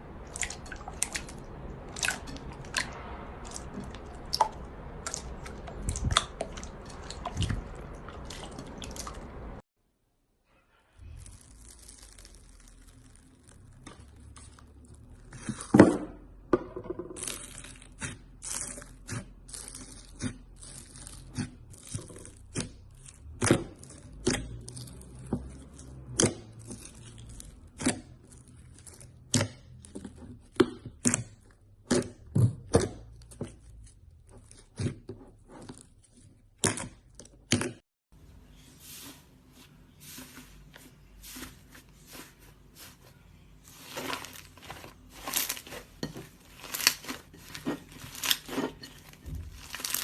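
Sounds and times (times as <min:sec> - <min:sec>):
sticky slime tearing: 0:11.0 - 0:15.7, 0:17.2 - 0:30.1, 0:43.7 - 0:50.0.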